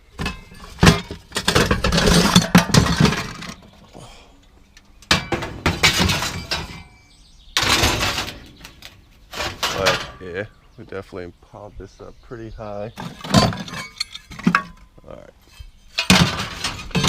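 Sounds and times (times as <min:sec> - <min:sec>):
scrap metal clanking and clattering: 0:00.1 - 0:04.1, 0:04.9 - 0:10.5, 0:13.0 - 0:17.0.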